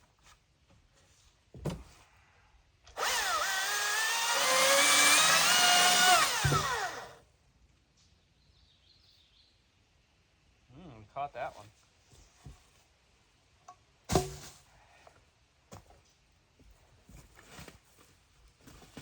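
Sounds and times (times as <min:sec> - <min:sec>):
power tool motor whine: 0:03.0 - 0:07.2.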